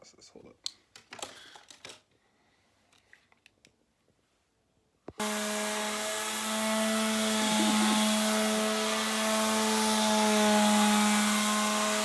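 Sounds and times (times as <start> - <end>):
electric sander running on wood: 5.2 - 12.0.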